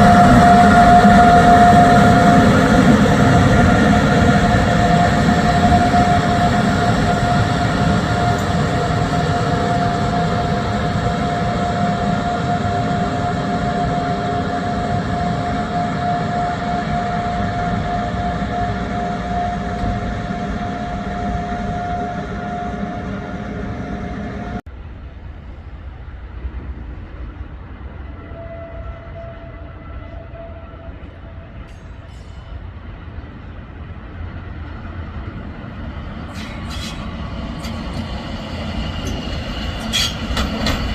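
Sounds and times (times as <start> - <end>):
steady whining tone: 0.0 - 24.6
train rumbling: 0.0 - 40.9.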